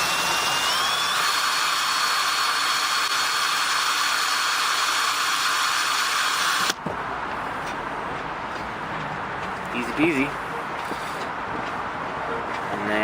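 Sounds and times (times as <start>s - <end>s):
electric drill boring: 0.0s - 6.8s.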